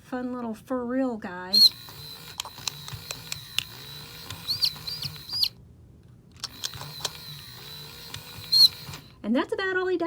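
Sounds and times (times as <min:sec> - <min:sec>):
toy mechanism clicks and hum: 0:01.5 - 0:05.6, 0:06.3 - 0:09.2.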